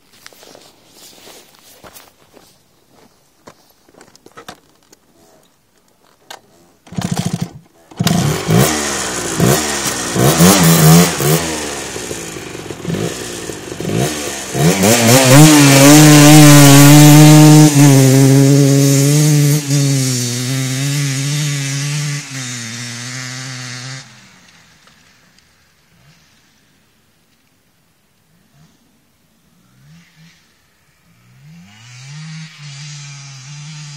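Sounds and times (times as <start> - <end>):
two-stroke motorcycle engine revving: 6.9 - 26.6, 29.5 - 33.9.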